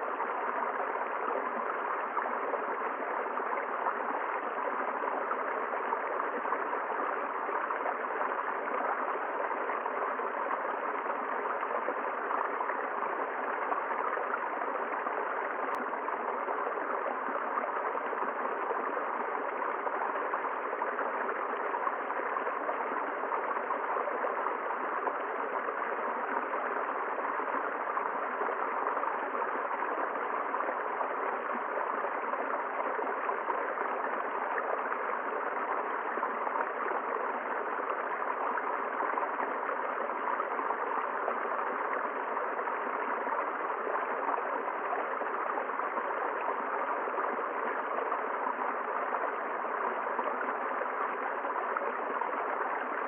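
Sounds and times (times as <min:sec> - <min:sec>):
stream flowing over rocks: 0:00.0 - 0:53.0
faint tick: 0:15.7 - 0:15.9.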